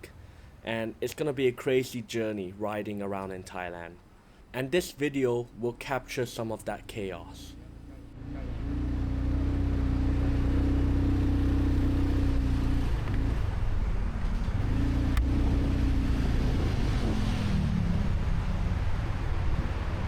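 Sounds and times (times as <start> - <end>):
wind and road noise: 0.0 - 20.0
motorcycle engine running: 7.7 - 19.8.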